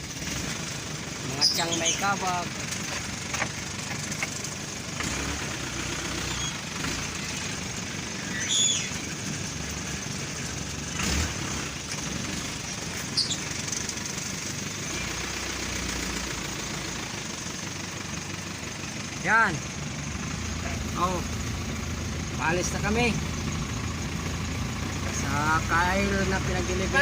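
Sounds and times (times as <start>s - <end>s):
vehicle engine running: 0.0s - 27.0s
high bird chirps: 1.3s - 2.2s, 6.2s - 6.6s, 8.1s - 9.2s, 12.9s - 13.6s.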